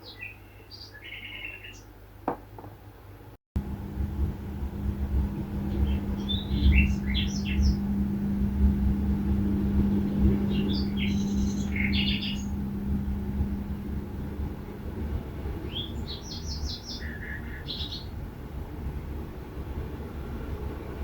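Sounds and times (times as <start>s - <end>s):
songbirds chirping: 0.0s - 2.5s, 4.7s - 14.6s, 15.6s - 18.2s
low hum and rumble: 3.6s - 21.0s.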